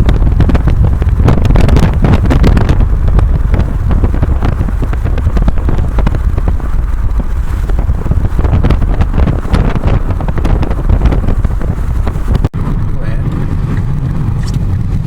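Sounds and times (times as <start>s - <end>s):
car rumbling on the move: 0.0s - 15.0s
wind buffeting microphone: 0.0s - 15.0s.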